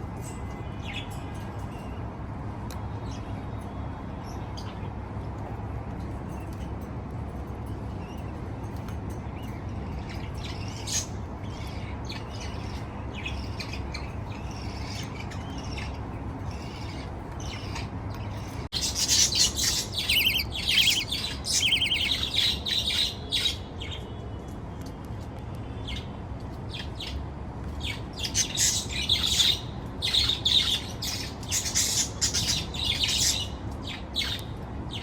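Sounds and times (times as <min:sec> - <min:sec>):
chicks chirping: 0:18.7 - 0:22.8.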